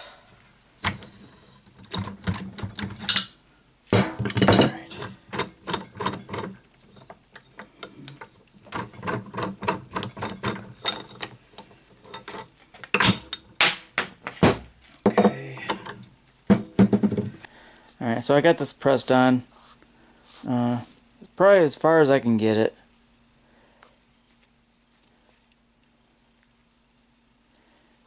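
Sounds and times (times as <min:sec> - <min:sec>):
metal clanks: 0:00.8 - 0:11.4.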